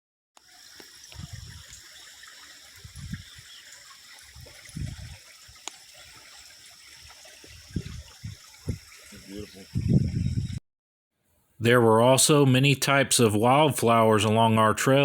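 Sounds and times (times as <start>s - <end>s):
water trickling in a stream: 0.4s - 10.2s.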